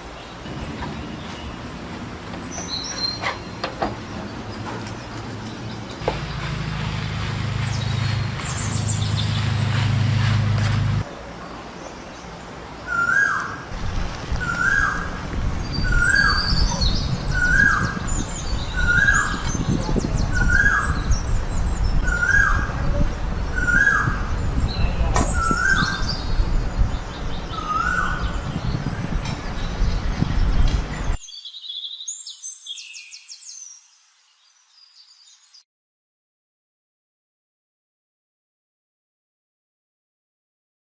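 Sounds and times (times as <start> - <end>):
low rumbling noise: 0.0 - 11.8, 13.6 - 31.2
birds chirping: 0.0 - 35.6
low hum: 0.3 - 11.0.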